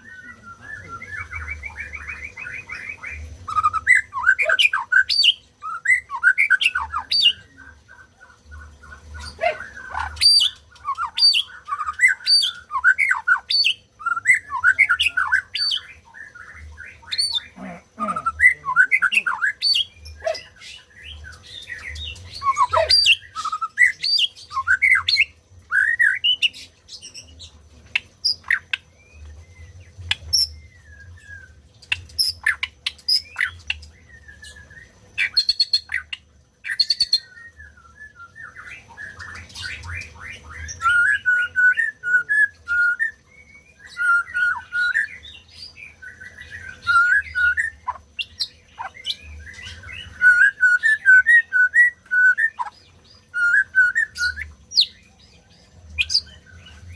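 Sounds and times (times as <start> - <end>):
bird singing whistled phrases: 0.0 - 7.7, 9.3 - 17.5, 18.1 - 27.3, 28.3 - 31.6, 32.2 - 55.0.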